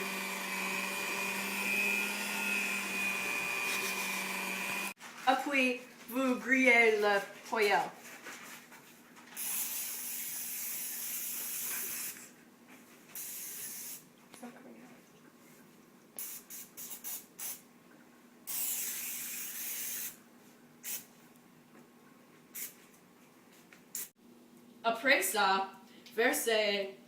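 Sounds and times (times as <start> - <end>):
aerosol spray hissing: 18.5 - 20.2.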